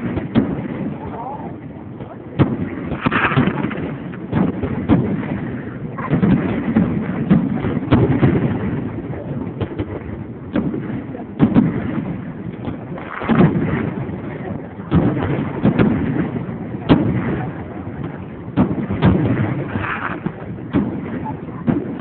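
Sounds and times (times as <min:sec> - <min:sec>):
fireworks sharp bangs: 0:00.0 - 0:22.0.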